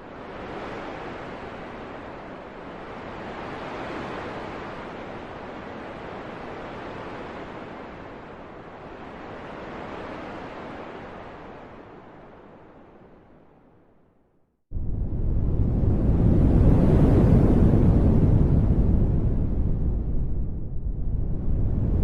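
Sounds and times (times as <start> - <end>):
wind blowing in gusts: 0.0 - 13.8, 14.7 - 22.0.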